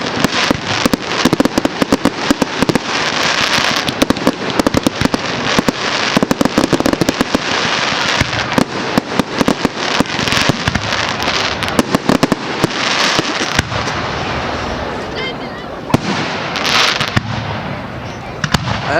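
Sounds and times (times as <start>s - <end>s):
fireworks crackling bangs: 0.0s - 18.9s.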